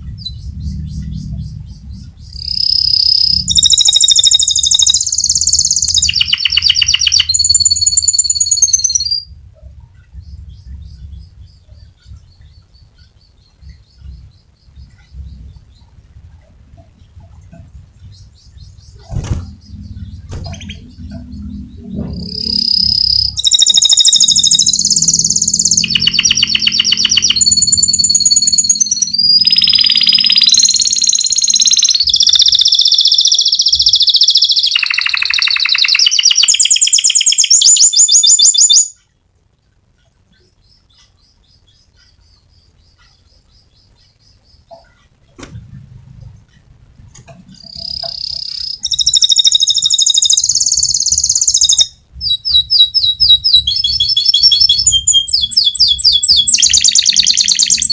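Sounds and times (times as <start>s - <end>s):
low hum: 0.0s - 32.3s
canary singing: 0.0s - 57.9s.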